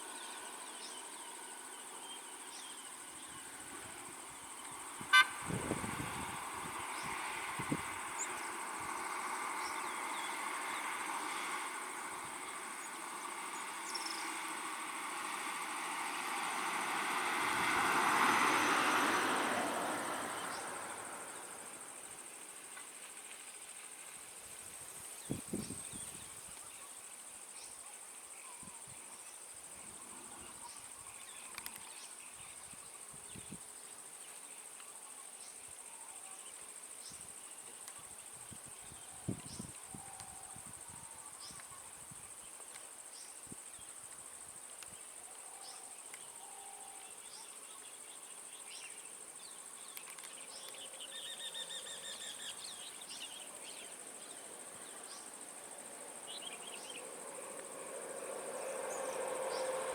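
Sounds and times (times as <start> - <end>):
insects droning: 0.0 - 59.9
vehicle passing: 4.8 - 22.0, 54.0 - 59.9.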